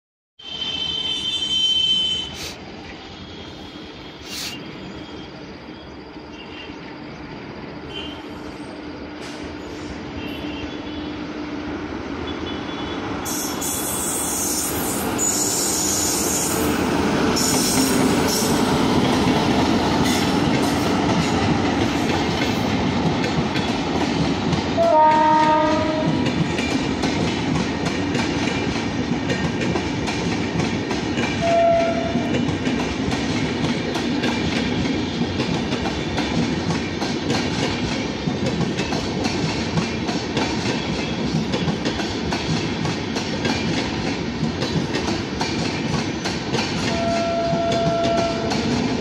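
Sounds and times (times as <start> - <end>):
train horn: 0.4 - 2.5, 10.1 - 11.3, 12.2 - 16.4, 24.8 - 26.2, 31.4 - 32.4, 46.8 - 48.6
train wheels clattering over rail joints: 17.3 - 49.0.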